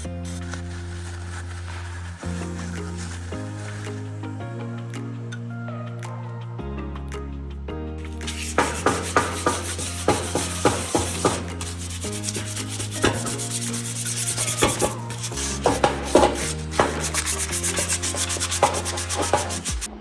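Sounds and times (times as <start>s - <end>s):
background music with bass line: 0.0s - 20.0s
rough rubbing strokes: 8.2s - 19.9s.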